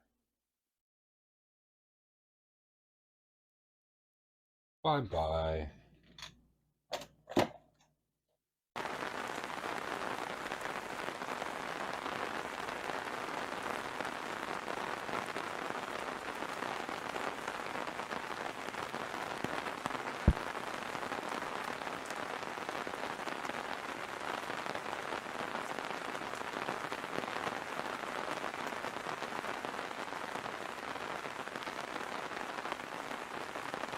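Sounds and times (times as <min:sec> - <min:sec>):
steady rain falling: 0:08.8 - 0:33.9.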